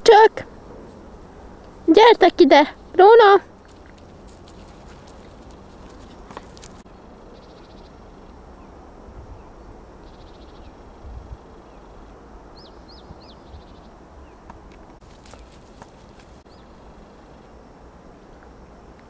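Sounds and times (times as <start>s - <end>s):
faint bird trills and chirps: 3.6s - 14.5s.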